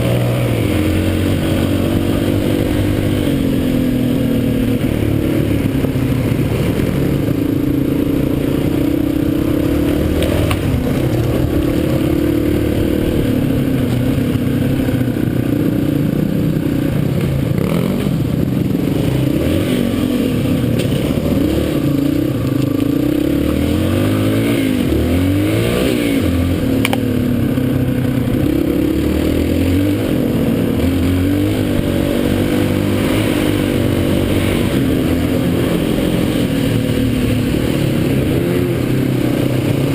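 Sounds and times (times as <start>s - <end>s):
dirt bike engine revving: 0.0s - 39.9s
sharp clicks and knocks: 26.8s - 27.1s.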